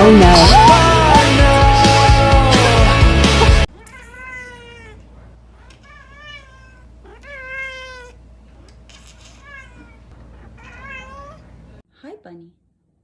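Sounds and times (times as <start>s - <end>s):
cat meowing: 3.7s - 8.2s, 8.9s - 11.5s.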